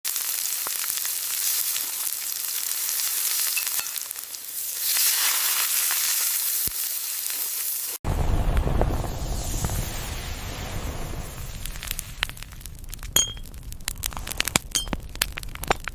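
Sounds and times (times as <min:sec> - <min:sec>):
sizzling with fine crackles: 0:00.0 - 0:15.9
deep rumbling hiss: 0:08.1 - 0:13.1.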